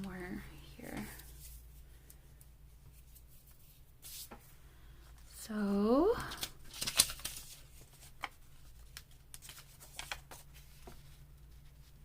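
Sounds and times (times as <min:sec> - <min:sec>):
paper rustling: 0:02.9 - 0:04.5, 0:06.2 - 0:12.0.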